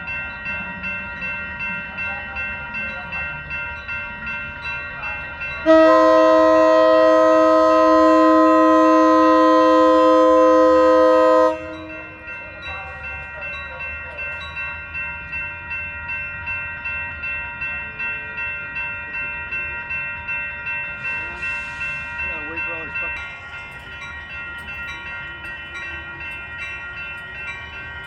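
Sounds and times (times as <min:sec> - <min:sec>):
passing train rumble: 0:00.0 - 0:28.0
train horn chord: 0:05.6 - 0:12.3.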